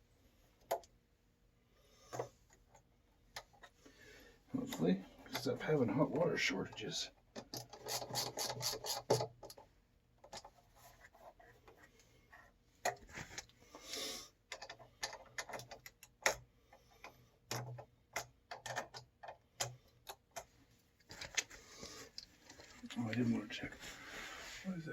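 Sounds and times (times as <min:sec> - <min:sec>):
small clicks and taps: 0:14.5 - 0:22.7.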